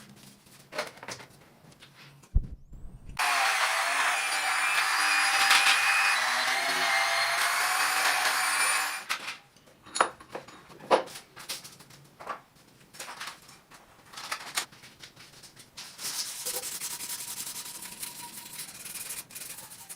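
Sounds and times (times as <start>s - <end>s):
power tool motor running: 3.2s - 9.1s
hand sanding strokes: 16.1s - 19.9s.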